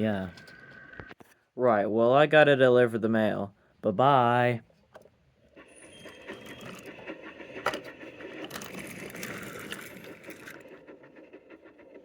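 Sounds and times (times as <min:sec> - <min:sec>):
toy train rattling whir: 0:05.4 - 0:12.0.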